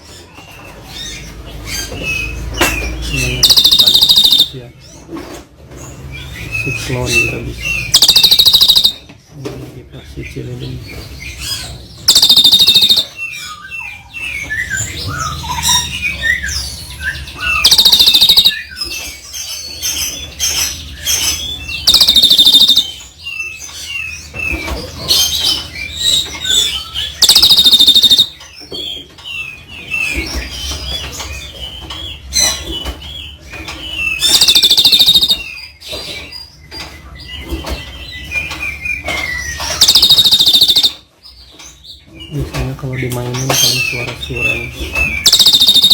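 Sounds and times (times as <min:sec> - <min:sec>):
harsh rasping bird calls: 0:00.8 - 0:05.1, 0:06.0 - 0:09.1, 0:10.2 - 0:45.9
quick bird chirps and whistles: 0:03.2 - 0:04.6, 0:07.8 - 0:09.0, 0:12.1 - 0:13.2, 0:17.4 - 0:18.7, 0:21.8 - 0:23.0, 0:25.2 - 0:28.4, 0:34.2 - 0:35.6, 0:39.6 - 0:41.0, 0:45.0 - 0:45.9.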